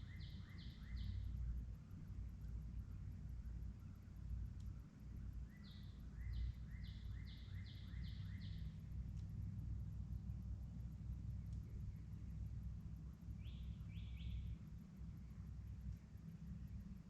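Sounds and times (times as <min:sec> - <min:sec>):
songbird singing: 0:00.0 - 0:01.6, 0:05.2 - 0:09.3, 0:13.3 - 0:16.0
low outdoor rumble: 0:00.0 - 0:17.0.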